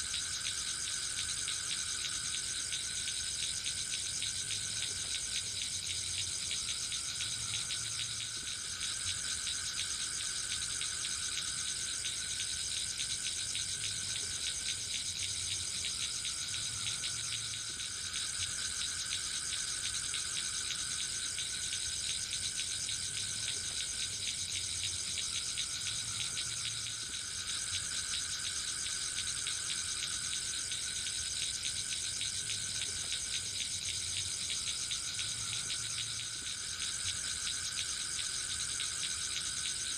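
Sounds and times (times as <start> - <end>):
insects trilling: 0.0 - 39.9
low insect call: 0.0 - 39.9.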